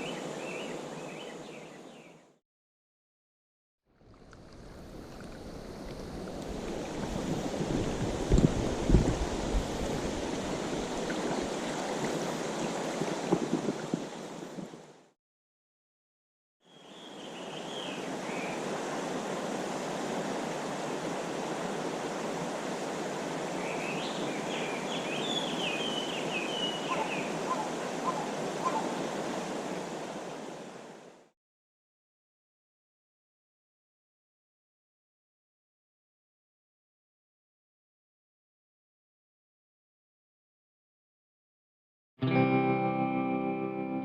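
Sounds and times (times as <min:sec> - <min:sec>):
stream water rushing: 0:04.0 - 0:15.1, 0:16.8 - 0:31.3
high chirping calls: 0:23.7 - 0:28.8.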